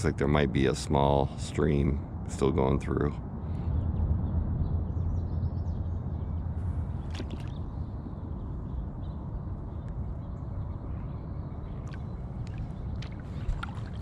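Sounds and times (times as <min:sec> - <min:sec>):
steady low rumble: 0:00.0 - 0:14.0
water lapping around kayak: 0:06.6 - 0:08.1, 0:10.2 - 0:14.0
light clicks of drips: 0:11.8 - 0:14.0.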